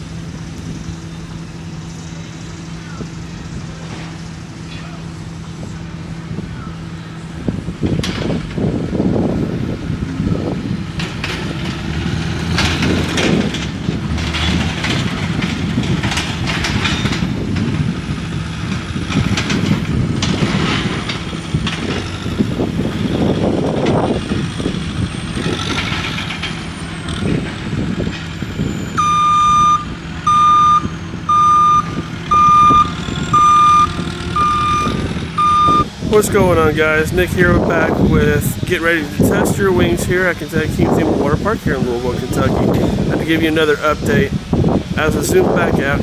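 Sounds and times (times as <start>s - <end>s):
diesel engine humming: 0.0s - 46.0s
backup alarm beeping: 28.5s - 38.0s.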